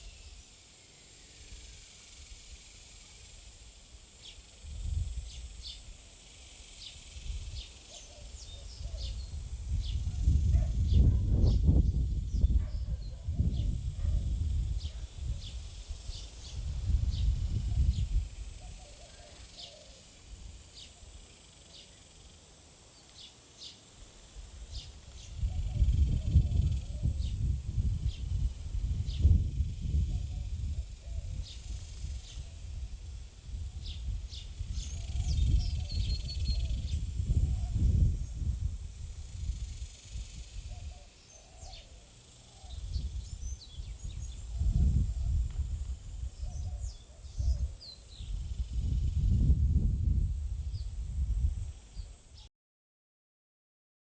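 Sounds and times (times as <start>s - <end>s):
steady high-pitched hiss: 0.0s - 52.5s
small birds chirping: 2.7s - 32.8s, 33.8s - 38.4s, 39.5s - 45.5s
wind buffeting microphone: 4.6s - 5.6s, 8.4s - 18.9s, 24.6s - 41.0s, 42.7s - 51.8s
small bird chirping: 6.6s - 13.8s, 33.8s - 38.4s, 39.8s - 45.4s.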